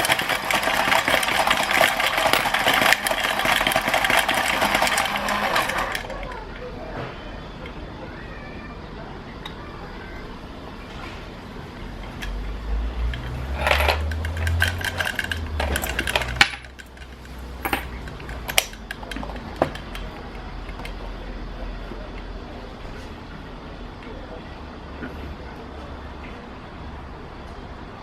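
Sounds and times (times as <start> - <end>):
coins rattling and clinking: 0.0 - 6.1, 13.0 - 20.1
small motor whirring: 0.0 - 6.2.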